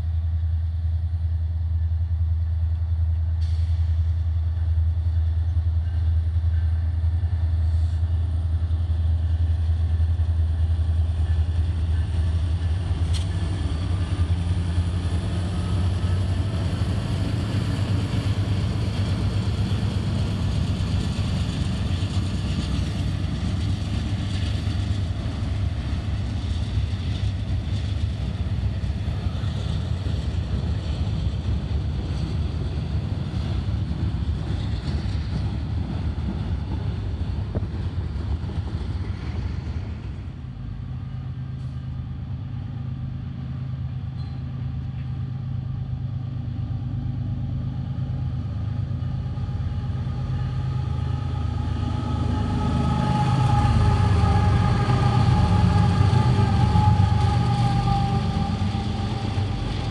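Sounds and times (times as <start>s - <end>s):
diesel locomotive approaching: 0.0s - 59.9s.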